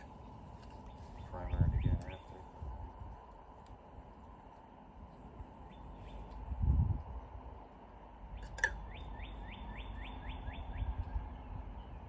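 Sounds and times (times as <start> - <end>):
songbird whistling: 8.4 - 12.0.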